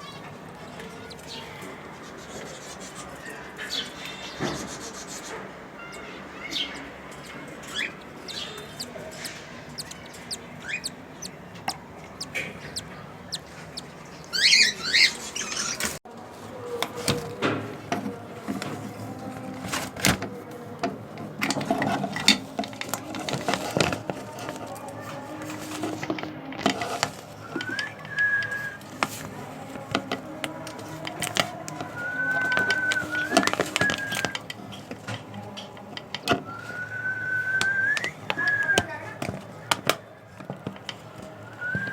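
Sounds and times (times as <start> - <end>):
birds chirping and clicking: 0.0 - 16.0, 20.8 - 36.4
bird whistling: 12.1 - 15.8, 27.4 - 28.8, 32.0 - 34.4, 36.5 - 39.0, 41.5 - 41.9.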